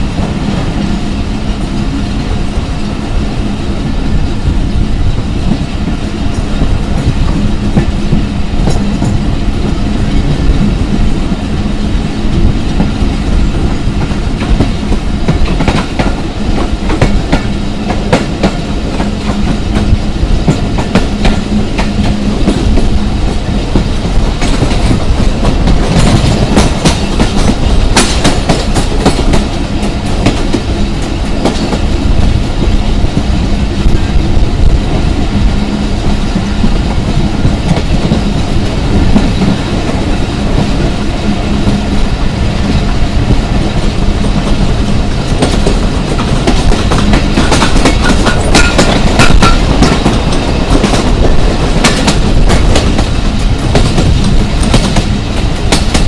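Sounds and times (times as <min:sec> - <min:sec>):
train wheel rumble: 0:00.0 - 0:56.0
wheels clacking over rail joints: 0:43.8 - 0:56.0.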